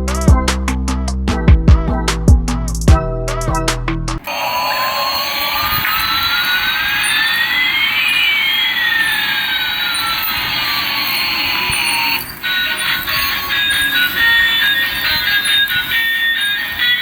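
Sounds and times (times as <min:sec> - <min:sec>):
toy jet engine sound effect: 0:04.2 - 0:17.0.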